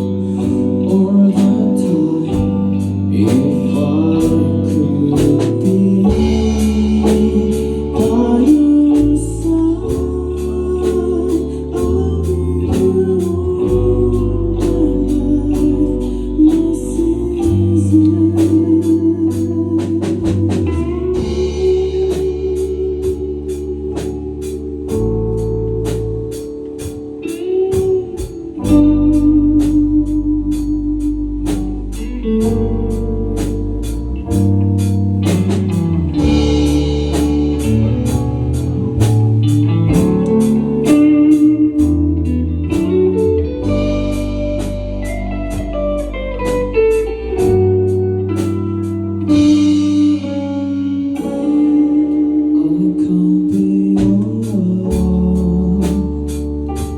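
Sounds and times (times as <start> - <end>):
band playing a song: 0.0 - 56.9
drum and cymbal beat: 3.3 - 9.2, 19.3 - 28.9, 33.3 - 43.0.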